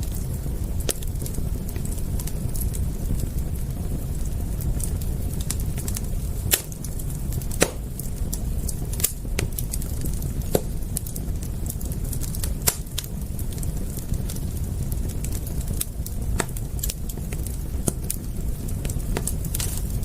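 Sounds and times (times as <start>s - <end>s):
steady low rumble: 0.0s - 20.0s
wood fire crackling and popping: 0.0s - 20.0s.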